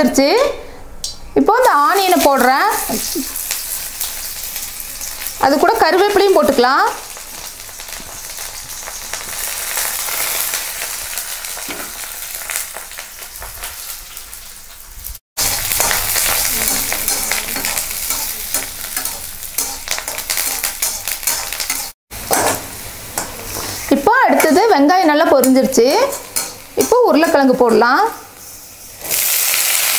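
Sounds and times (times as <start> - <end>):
onions sizzling in hot oil: 1.6 - 29.9
spatula stirring: 15.4 - 22.5.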